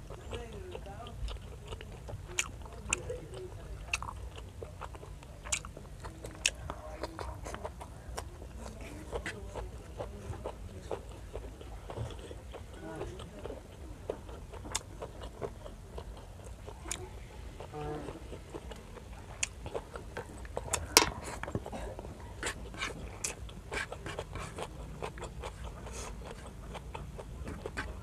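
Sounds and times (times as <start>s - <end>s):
chewing and wet mouth smacks: 0.0s - 28.0s.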